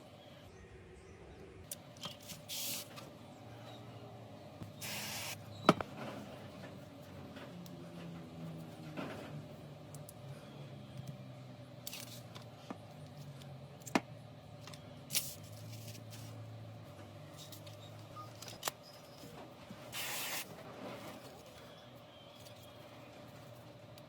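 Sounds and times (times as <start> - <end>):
short hissing bursts: 4.8 - 5.4, 19.9 - 20.5.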